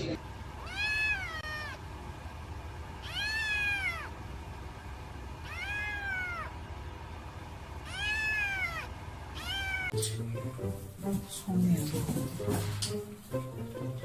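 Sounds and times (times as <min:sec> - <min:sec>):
cat meowing: 0:00.6 - 0:01.8, 0:03.0 - 0:04.2, 0:05.4 - 0:06.5, 0:07.8 - 0:10.0.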